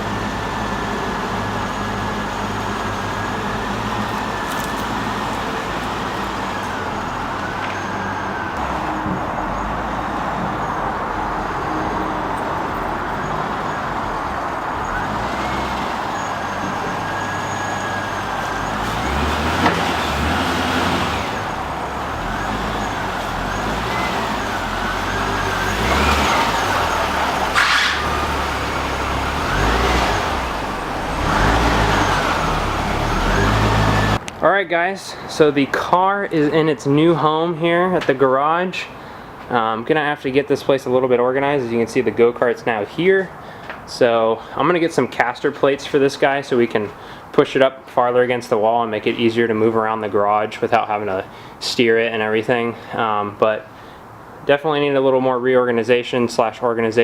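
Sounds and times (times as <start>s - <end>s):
tow truck engine running: 0.0s - 34.4s, 45.4s - 48.0s.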